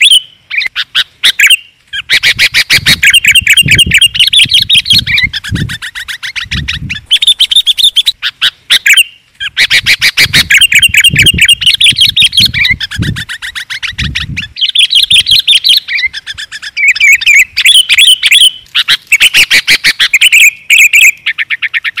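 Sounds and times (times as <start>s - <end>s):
bulbul chattering: 0.0s - 22.0s.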